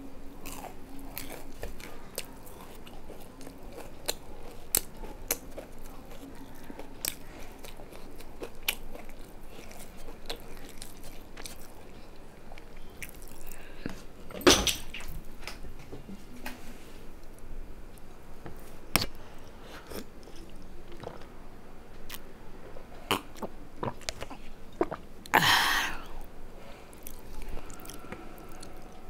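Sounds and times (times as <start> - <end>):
chewing and biting: 0.4 - 13.6.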